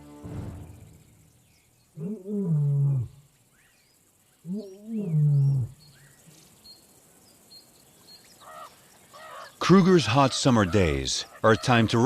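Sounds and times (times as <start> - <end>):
faint birds chirping: 0.3 - 12.0
lion moaning calls: 2.0 - 3.2, 4.4 - 5.8.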